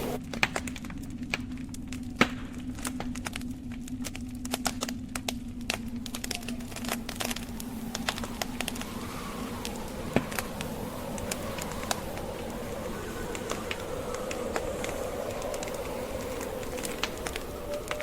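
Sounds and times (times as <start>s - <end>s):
snowstorm wind whistling: 0.0s - 0.2s, 4.5s - 18.0s
log fire crackling and popping: 0.0s - 18.0s.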